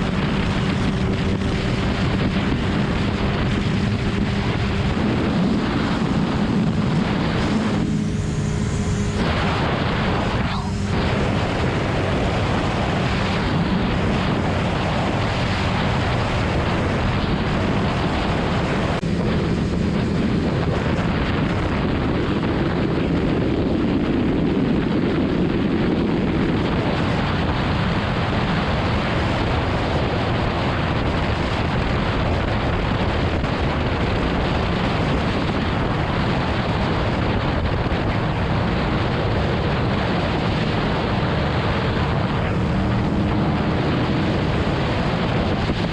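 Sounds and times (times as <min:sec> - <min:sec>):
motorcycle engine running: 0:00.0 - 0:45.9
wind rushing over microphone: 0:00.0 - 0:45.9.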